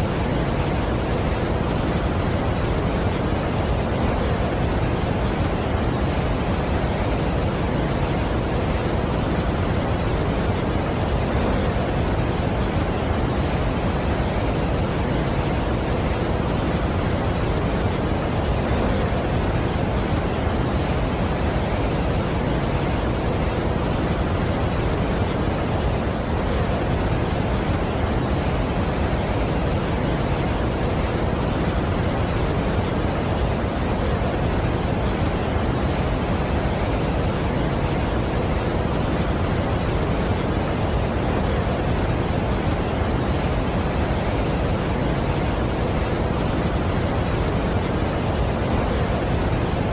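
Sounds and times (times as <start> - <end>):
waterfall roaring: 0.0 - 49.9.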